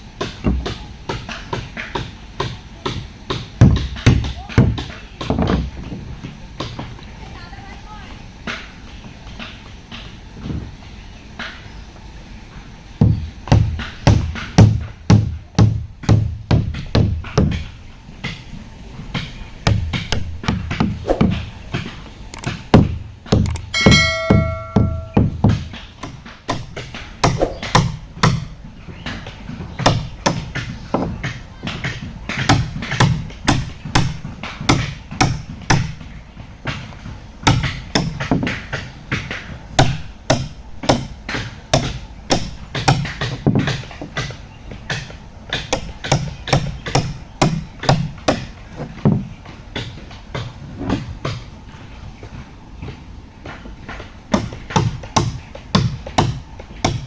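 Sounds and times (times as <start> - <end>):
hammer blows on wood: 19.1 - 36.8
short ringing tone: 23.7 - 25.2.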